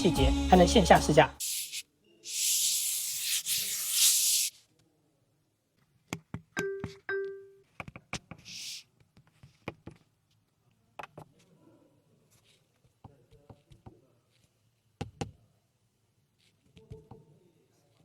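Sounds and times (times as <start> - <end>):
loud hiss: 1.4 - 4.5.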